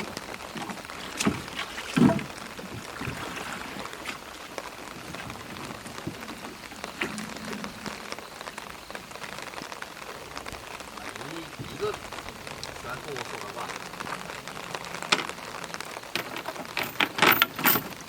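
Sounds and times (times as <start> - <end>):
light rain pattering: 0.0 - 18.0.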